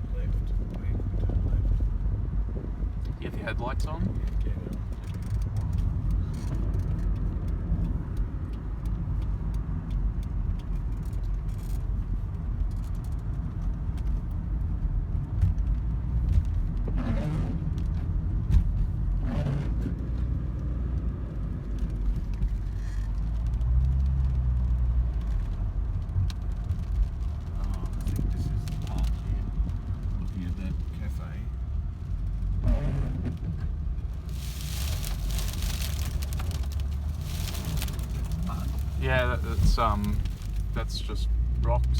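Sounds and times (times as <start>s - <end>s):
car engine and road rumble: 0.0s - 41.9s
rain clicking on car body: 20.6s - 32.6s, 33.2s - 41.2s.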